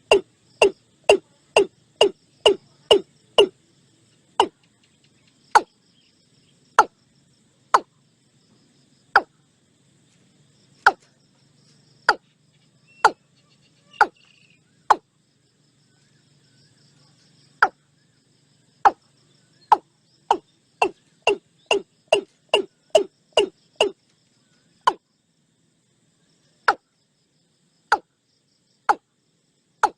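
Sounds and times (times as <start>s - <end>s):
faint insects trilling: 0.0s - 29.9s
watercock sharp calls: 19.7s - 24.0s.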